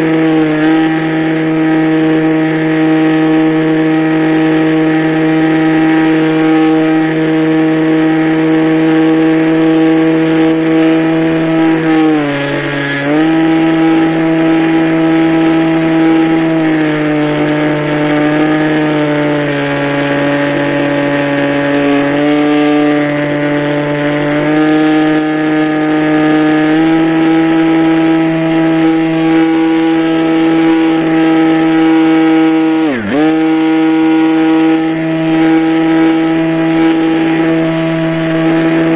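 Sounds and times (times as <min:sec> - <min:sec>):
model airplane engine running: 0:00.0 - 0:38.9.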